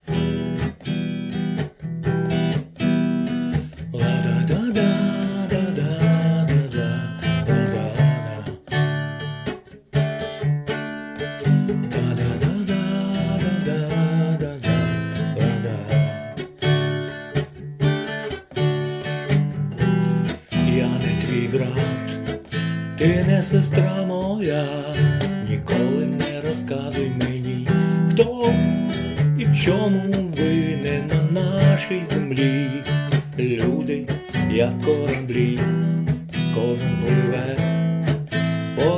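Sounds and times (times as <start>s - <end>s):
acoustic guitar strumming chords: 0.0s - 38.9s.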